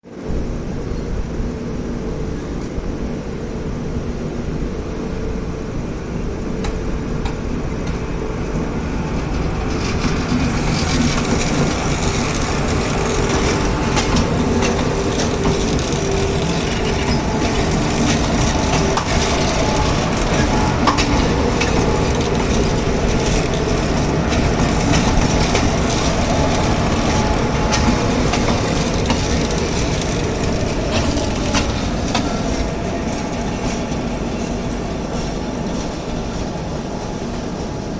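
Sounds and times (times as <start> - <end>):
train rumbling on rails: 0.0 - 37.9
steady hum: 0.3 - 35.8
wheel clatter: 9.3 - 35.4.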